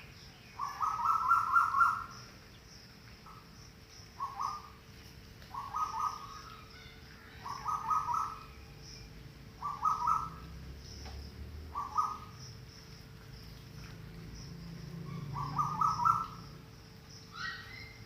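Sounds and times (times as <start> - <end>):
faint steady hum: 0.0 - 18.0
short fluttering animal calls: 4.2 - 4.8, 5.5 - 8.5.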